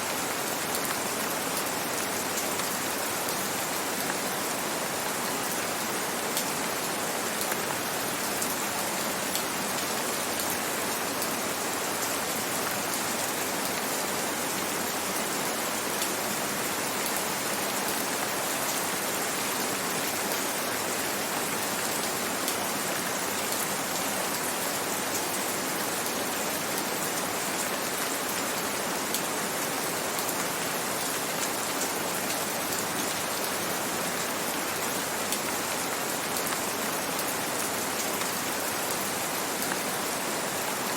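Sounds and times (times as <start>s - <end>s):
gentle rain falling: 0.0s - 40.9s.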